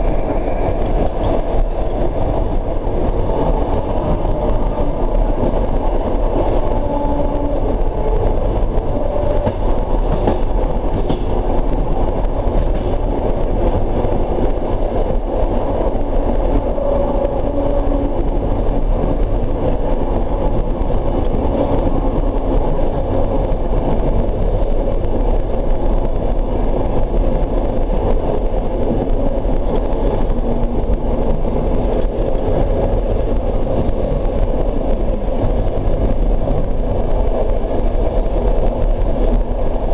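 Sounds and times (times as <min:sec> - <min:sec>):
train rumbling on track: 0:00.0 - 0:39.9.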